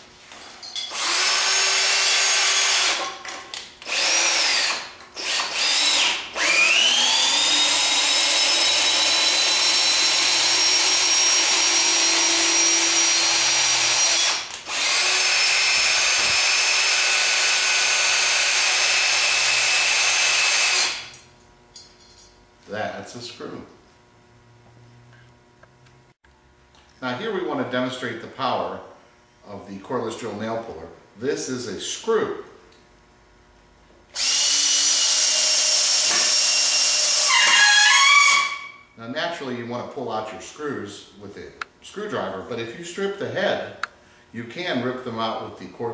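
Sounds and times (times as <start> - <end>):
cordless drill motor whining: 0.9 - 3.1, 3.8 - 21.1, 34.1 - 38.8.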